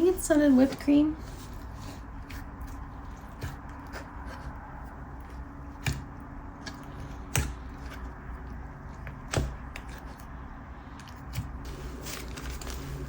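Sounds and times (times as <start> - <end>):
slime squishing: 0.4 - 13.0.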